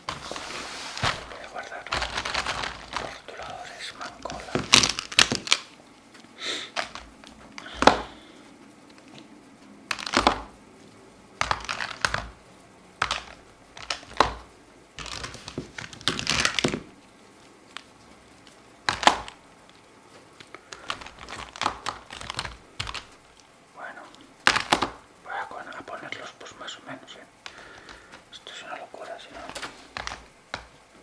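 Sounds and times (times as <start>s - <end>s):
markers scratching on paper: 0.0s - 5.3s.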